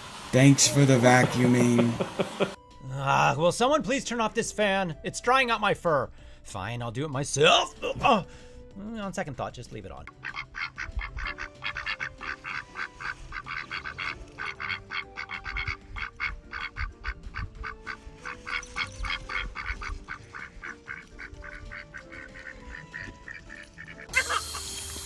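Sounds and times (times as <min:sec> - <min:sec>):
animal making rapid short calls: 0:10.2 - 0:24.4.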